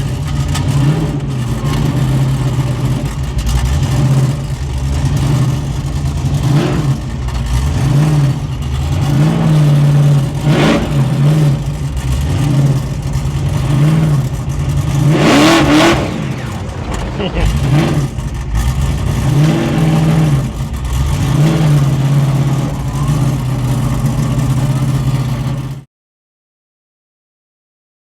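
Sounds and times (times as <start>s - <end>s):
car engine revving: 0.0s - 25.8s
brief rushing noise: 15.5s - 18.4s.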